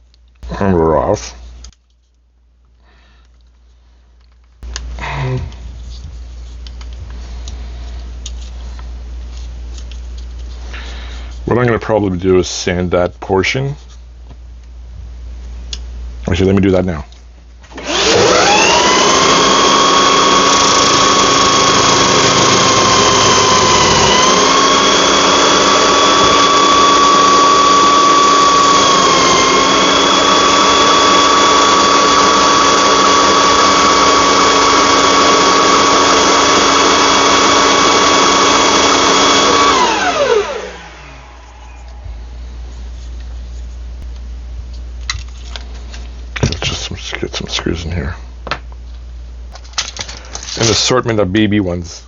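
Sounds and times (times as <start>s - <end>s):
electric sander motor whine: 17.7s - 42.6s.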